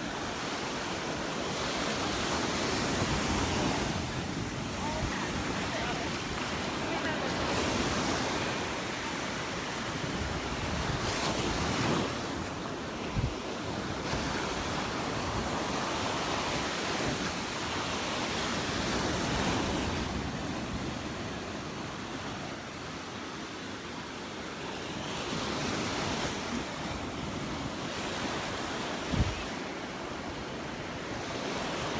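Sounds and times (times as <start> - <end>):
surf washing onto beach: 0.0 - 31.9
wind buffeting microphone: 29.0 - 29.5.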